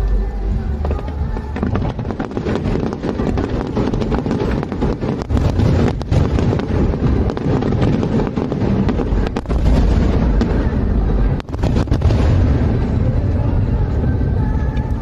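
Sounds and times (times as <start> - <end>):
continuous low rumble: 0.0 - 15.0
firework crackles: 0.0 - 15.0
firework shell bursts and booms: 1.4 - 13.2.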